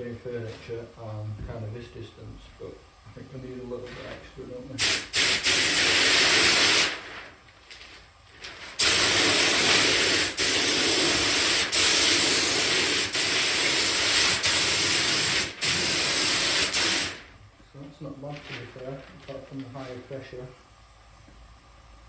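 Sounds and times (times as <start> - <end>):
paint spray gun hissing: 4.8 - 7.0, 8.8 - 17.3.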